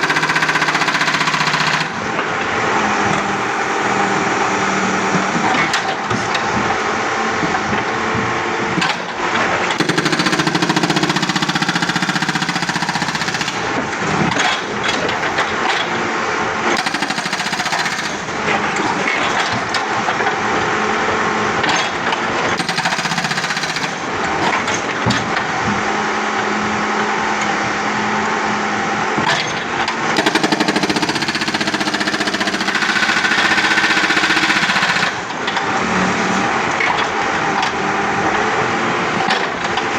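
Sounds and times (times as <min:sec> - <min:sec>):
backhoe engine running: 0:00.0 - 0:16.0, 0:29.8 - 0:39.9
hydraulic hammer pounding concrete: 0:00.0 - 0:39.9.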